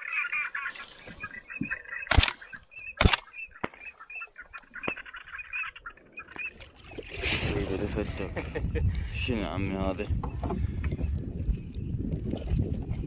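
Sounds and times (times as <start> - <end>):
birds calling: 0.0 - 12.2
sharp loud cracks: 2.1 - 2.4, 3.0 - 3.9.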